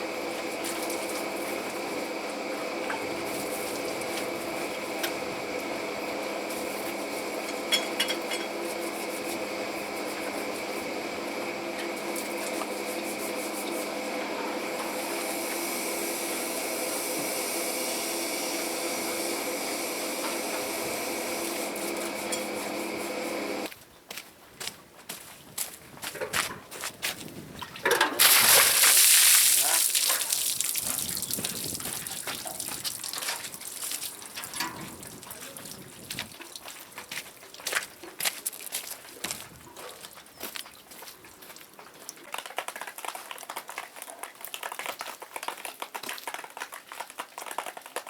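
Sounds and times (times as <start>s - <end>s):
machinery droning: 0.0s - 23.7s.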